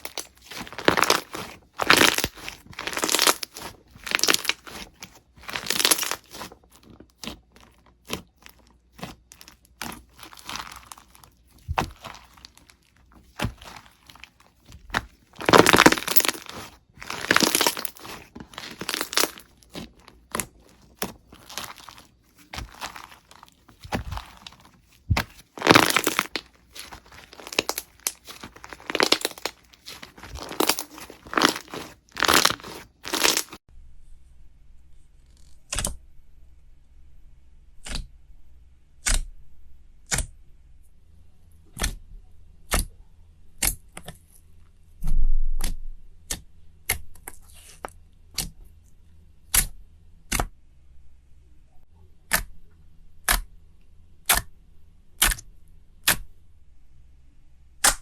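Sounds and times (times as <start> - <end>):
slime popping: 0.0 - 6.5, 14.9 - 33.6
slime crackling and tearing: 0.0 - 33.6.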